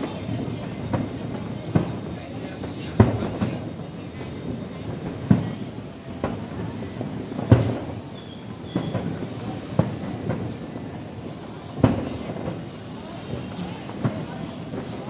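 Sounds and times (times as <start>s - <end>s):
fireworks bangs: 0.0s - 15.0s
continuous rumble: 9.0s - 15.0s.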